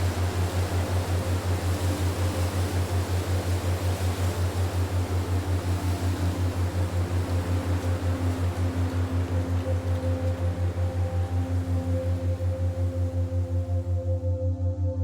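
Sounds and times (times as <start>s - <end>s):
wind-like hiss: 0.0s - 14.2s
pulsing low hum: 0.0s - 15.0s.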